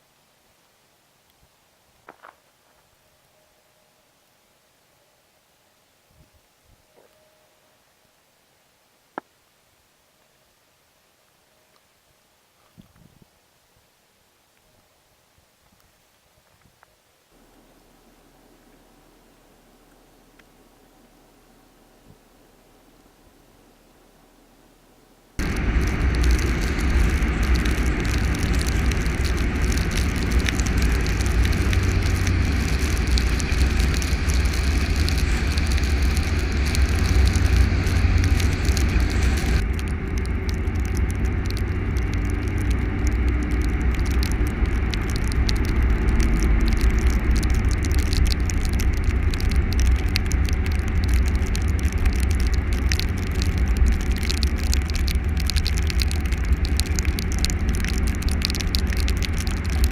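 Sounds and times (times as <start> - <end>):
tyre hiss and crackle: 11.1 - 59.9
vehicle rumble: 17.4 - 59.9.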